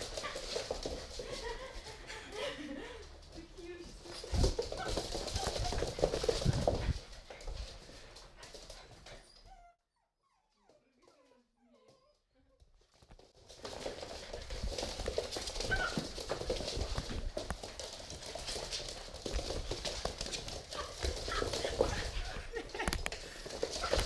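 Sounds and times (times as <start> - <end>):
puppies' paws scuffling on floor: 0.0 - 9.7, 12.6 - 24.0
faint puppy squeaks: 9.2 - 12.7.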